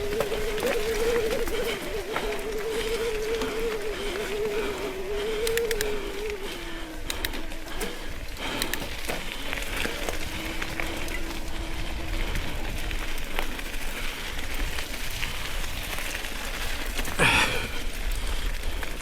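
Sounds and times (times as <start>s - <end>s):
bike clicks and rattles: 0.0s - 19.0s
wet trail noise: 0.0s - 19.0s.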